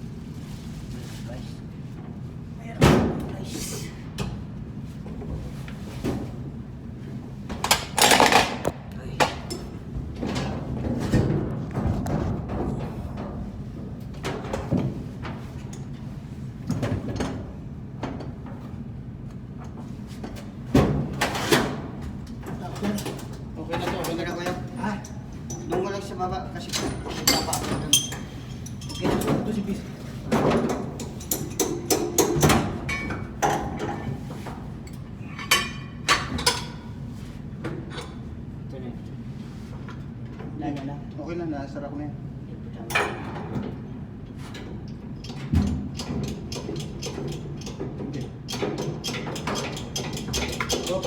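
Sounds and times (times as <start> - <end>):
low machinery hum: 0.0 - 46.4.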